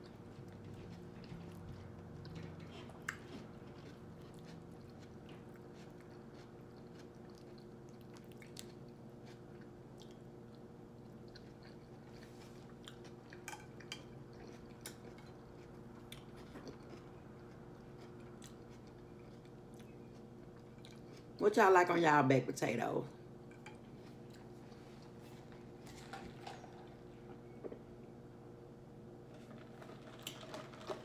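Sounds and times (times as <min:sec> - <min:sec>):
chewing with wet mouth clicks: 0:00.0 - 0:21.4.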